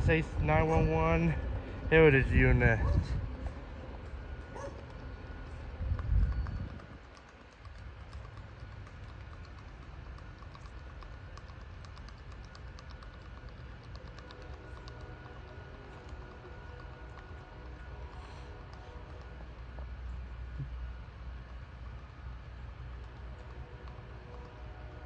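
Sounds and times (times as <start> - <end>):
freight train rumble: 0.0 - 25.0
faint irregular clicking: 4.7 - 24.7.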